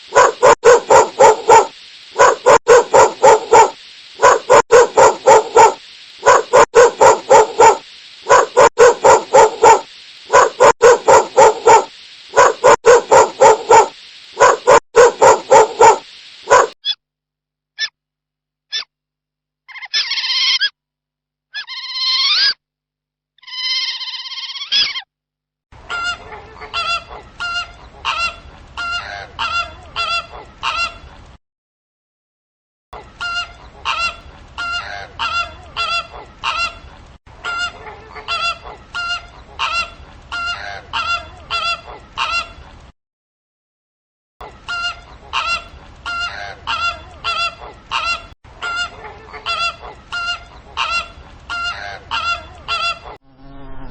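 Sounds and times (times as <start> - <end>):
geese honking: 44.7 - 53.1.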